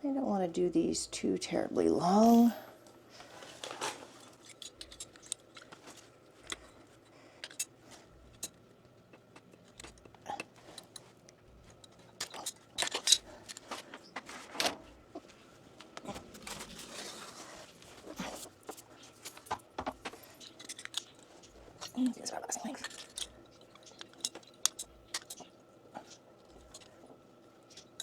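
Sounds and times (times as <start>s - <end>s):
plumbing fittings clicking and rattling: 4.2s - 14.7s, 18.6s - 27.0s.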